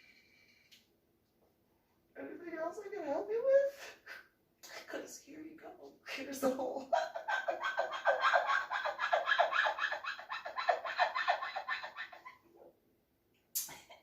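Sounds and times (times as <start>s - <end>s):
rapid rhythmic scratching: 6.9s - 12.4s.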